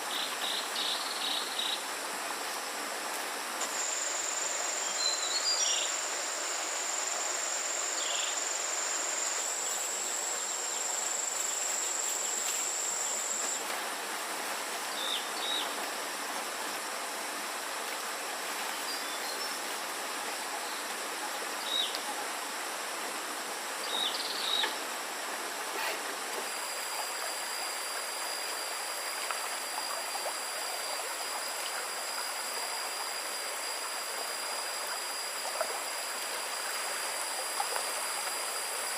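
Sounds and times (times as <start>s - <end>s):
insects droning: 0.0s - 38.9s
running water: 0.0s - 38.9s.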